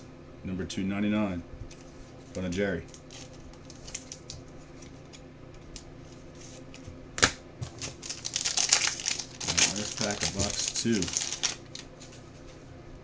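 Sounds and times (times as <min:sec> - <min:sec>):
packaging crackling rustle: 0:01.7 - 0:12.6
trading cards clicking and tapping: 0:09.6 - 0:11.5.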